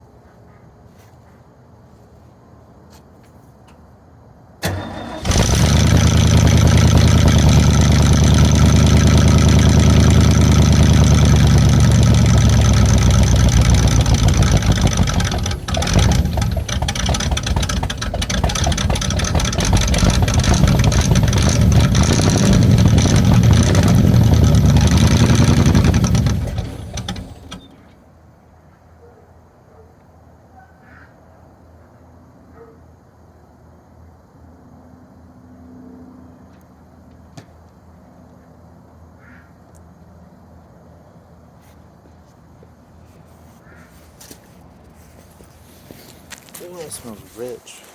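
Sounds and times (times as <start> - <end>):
engine cranking: 4.6 - 28.0
engine running rough: 4.6 - 28.0.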